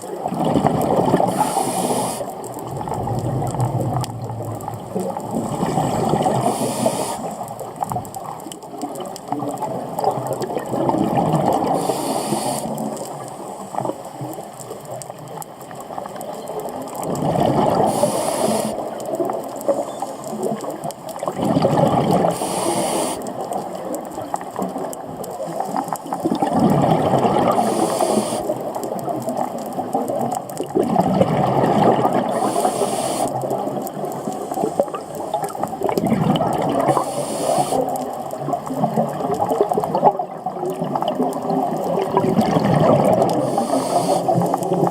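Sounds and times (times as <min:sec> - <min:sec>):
exhaled bubbles rushing: 0:00.0 - 0:12.0, 0:16.9 - 0:19.5, 0:20.3 - 0:22.4, 0:24.6 - 0:44.9
regulator inhale hiss: 0:01.3 - 0:02.4, 0:06.4 - 0:07.4, 0:11.7 - 0:13.6, 0:17.9 - 0:18.8, 0:22.3 - 0:23.3, 0:27.5 - 0:28.5, 0:32.3 - 0:33.4, 0:36.9 - 0:37.9, 0:43.4 - 0:44.6.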